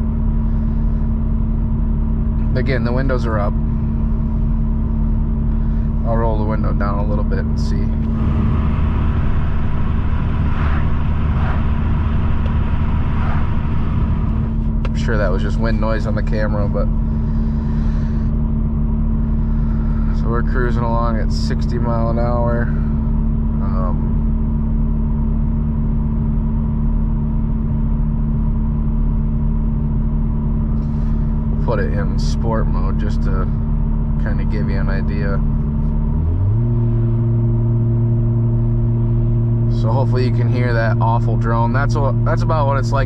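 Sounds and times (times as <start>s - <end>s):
car exhaust drone: 0.0s - 43.0s
wind rushing through window: 8.1s - 14.6s.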